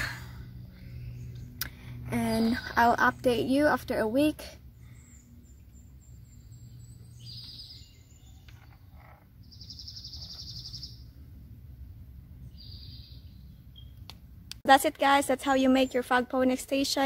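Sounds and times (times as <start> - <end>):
songbird trilling: 4.9 - 11.1.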